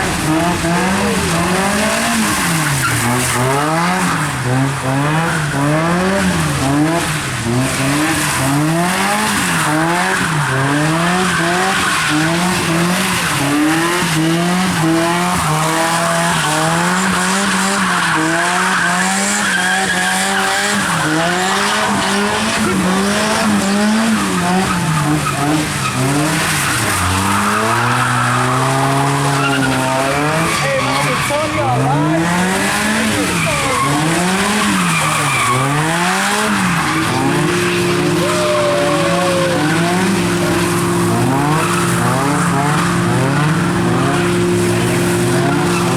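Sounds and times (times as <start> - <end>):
car engine revving: 0.0 - 45.9
tyres skidding: 0.0 - 45.9.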